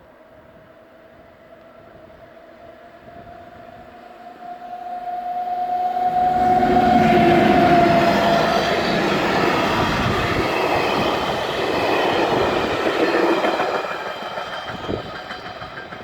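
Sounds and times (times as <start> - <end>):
wheel and rail noise: 0.2 - 16.0
electric locomotive high tone: 1.7 - 16.0.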